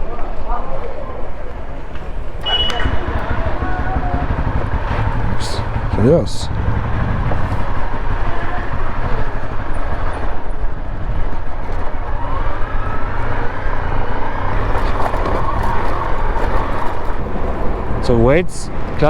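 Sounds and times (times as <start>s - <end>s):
wind buffeting microphone: 0.0s - 19.0s
motorcycle engine running: 2.0s - 12.0s, 14.5s - 19.0s.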